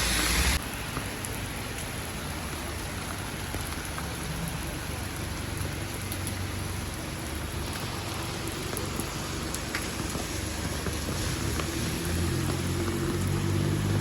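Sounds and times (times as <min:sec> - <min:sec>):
rain falling on street: 0:00.0 - 0:14.0.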